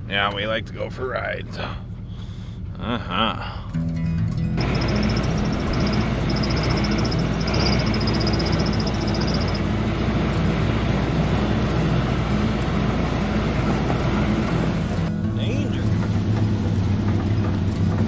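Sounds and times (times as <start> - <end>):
wind: 0.0 - 18.0
road rumble: 4.5 - 18.0
high thin tone: 4.6 - 9.8
small vehicle engine running: 4.6 - 18.0.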